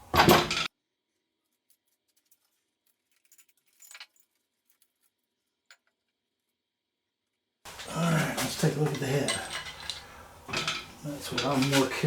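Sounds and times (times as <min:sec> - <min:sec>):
soft rustle: 0:07.7 - 0:12.0.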